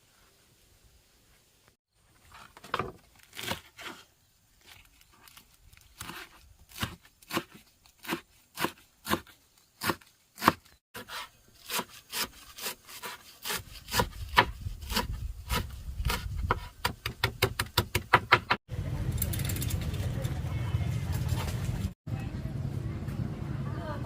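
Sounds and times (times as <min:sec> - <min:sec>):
knife chopping on wooden board: 0:06.0 - 0:18.6.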